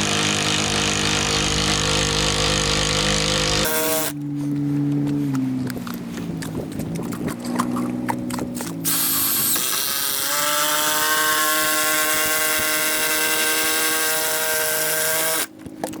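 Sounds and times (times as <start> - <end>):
power drill motor: 0.0 - 4.2, 8.9 - 15.5.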